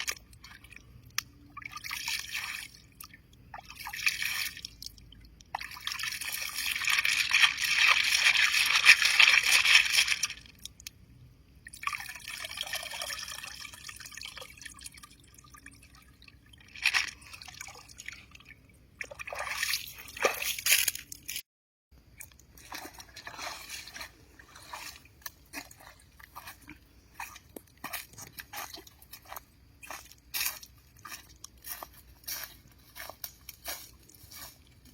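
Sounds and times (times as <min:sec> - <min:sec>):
water pouring and splashing: 0:00.0 - 0:10.9, 0:11.7 - 0:21.4, 0:22.1 - 0:34.9.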